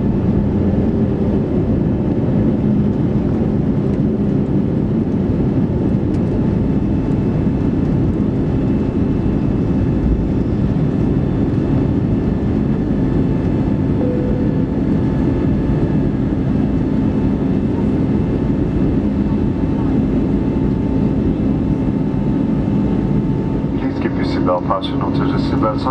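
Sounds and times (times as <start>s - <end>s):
airplane cabin engine rumble: 0.0s - 25.9s
faint steady hum: 14.0s - 16.0s.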